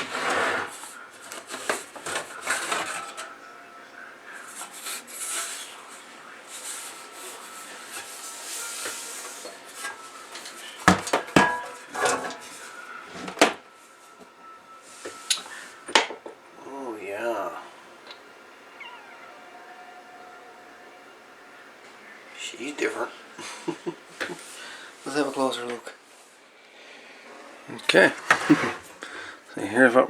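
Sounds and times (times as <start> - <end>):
metal chassis clinks and knocks: 10.9 - 12.5.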